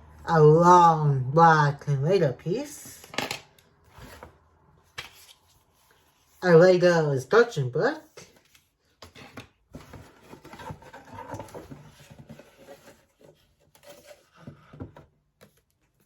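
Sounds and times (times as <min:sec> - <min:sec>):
paper and cardboard rustling: 0:08.1 - 0:16.0.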